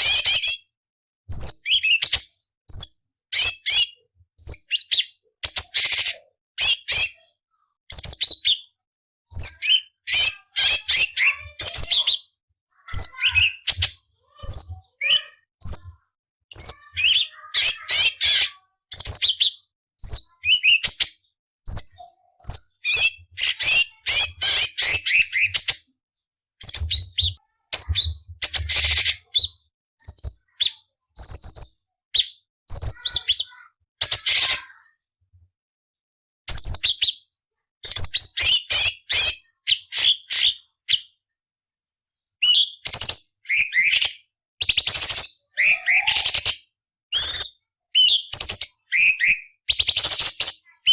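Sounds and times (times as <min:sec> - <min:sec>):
bird singing chirps and whistles: 0:01.3 - 0:07.2, 0:07.9 - 0:12.3, 0:12.9 - 0:15.9, 0:16.5 - 0:25.9, 0:26.6 - 0:34.5, 0:36.5 - 0:37.2, 0:37.8 - 0:41.2, 0:42.4 - 0:50.9.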